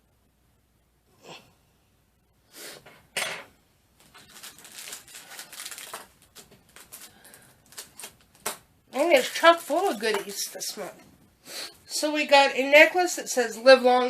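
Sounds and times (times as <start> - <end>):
packaging crinkling: 4.0 - 10.8
paper and packaging rustling: 4.0 - 11.0.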